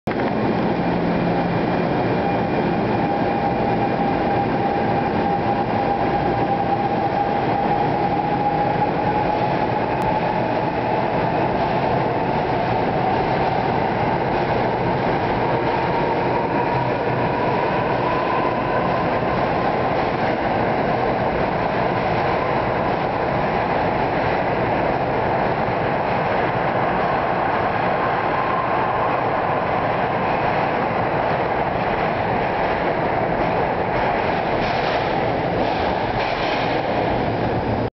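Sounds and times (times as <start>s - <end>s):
train wheels rumbling on rail: 0.1s - 37.9s
clicking over rail joints: 33.9s - 37.2s.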